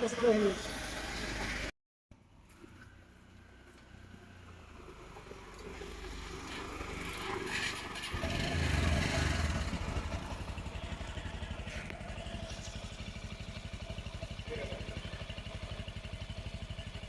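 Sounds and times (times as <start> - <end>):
motorcycle engine running: 4.3 - 17.0.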